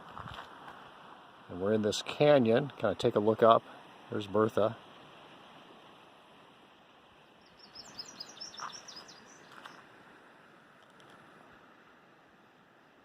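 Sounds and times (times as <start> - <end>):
faint outdoor hiss: 0.0 - 13.0
bird chirping: 7.4 - 9.8.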